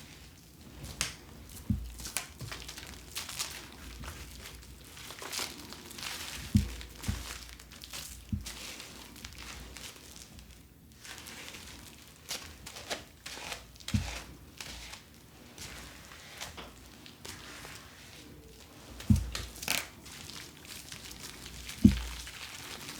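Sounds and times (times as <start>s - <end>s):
soft knocks: 1.6s - 2.1s, 6.5s - 7.4s, 19.0s - 19.6s, 21.8s - 22.3s.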